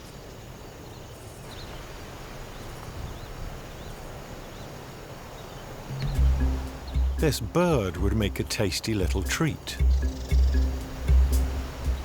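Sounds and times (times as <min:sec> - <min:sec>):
faint bird chirps: 0:00.0 - 0:08.0
outdoor background noise: 0:00.0 - 0:12.0.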